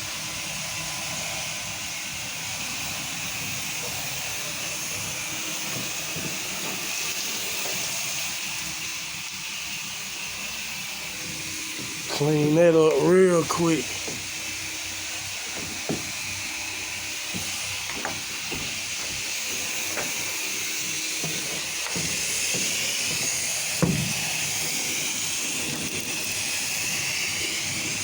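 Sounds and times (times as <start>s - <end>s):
sprayer nozzle hissing spray: 2.6s - 28.0s
light knocks: 15.5s - 16.2s, 17.3s - 19.2s, 21.2s - 24.2s.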